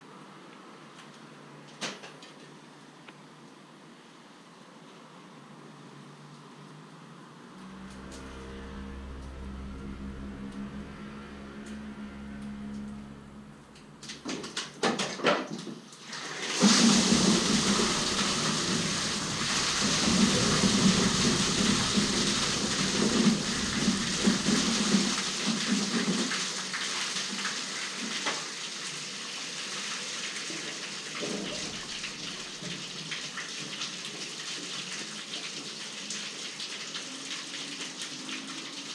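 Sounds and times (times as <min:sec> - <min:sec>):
water rushing through channel: 0:16.0 - 0:38.9.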